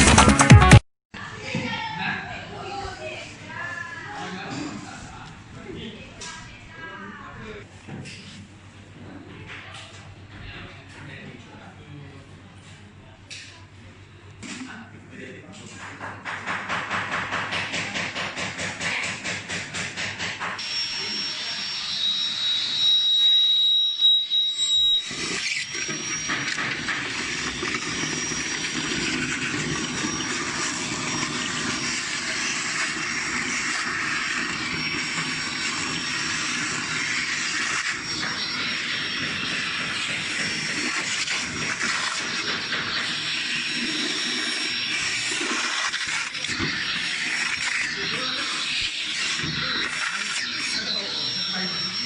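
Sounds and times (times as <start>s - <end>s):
vacuum cleaner running: 19.7s - 23.5s, 24.4s - 52.0s.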